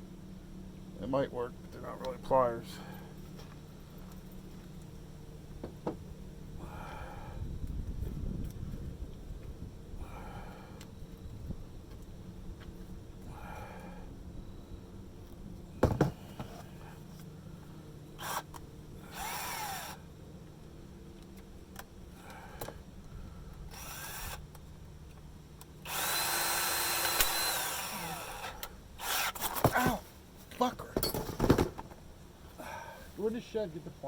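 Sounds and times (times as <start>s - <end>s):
power drill spinning: 18.2s - 20.0s, 23.7s - 24.4s, 25.8s - 30.0s.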